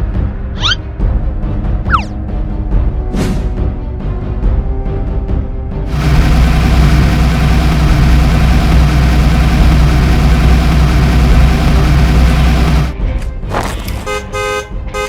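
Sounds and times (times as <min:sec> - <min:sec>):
heavy vehicle engine idling: 0:05.9 - 0:13.0.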